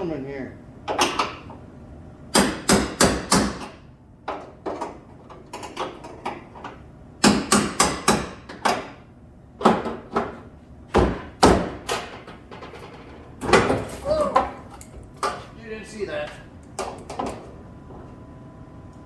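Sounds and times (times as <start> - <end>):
hammer on sheet metal: 2.4 - 3.7.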